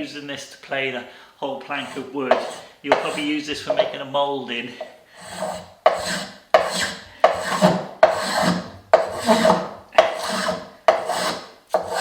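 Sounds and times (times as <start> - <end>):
hand plane shaving wood: 1.7 - 3.3, 5.2 - 12.0.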